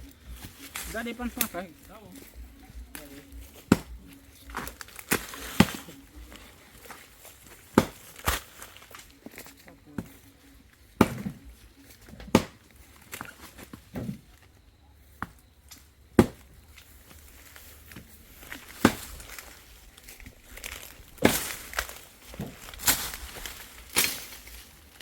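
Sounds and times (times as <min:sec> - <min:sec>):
rustling of leaves and brush: 0:00.0 - 0:25.0
blade chopping into wood: 0:03.6 - 0:04.0, 0:07.8 - 0:08.4, 0:11.0 - 0:11.4, 0:12.2 - 0:12.6, 0:16.2 - 0:16.5, 0:18.7 - 0:19.4.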